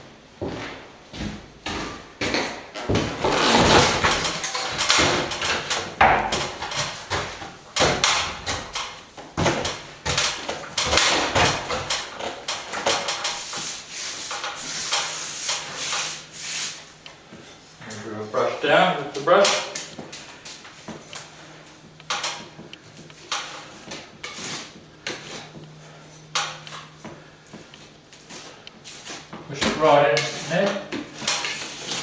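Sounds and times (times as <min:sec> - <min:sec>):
hand tools scraping plaster wall: 0:02.8 - 0:08.8, 0:09.6 - 0:16.9, 0:28.3 - 0:32.0.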